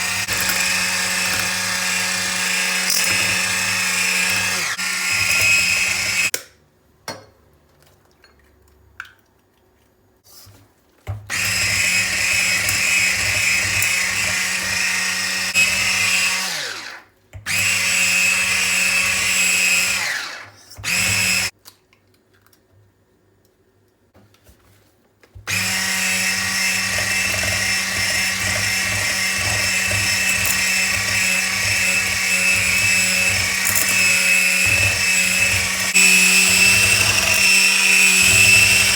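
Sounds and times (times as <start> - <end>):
small electric motor running: 0.0 - 6.3, 25.5 - 38.9.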